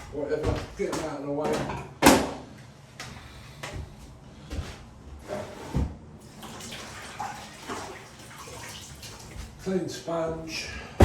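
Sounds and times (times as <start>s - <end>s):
water sloshing in a bucket: 6.2s - 10.6s.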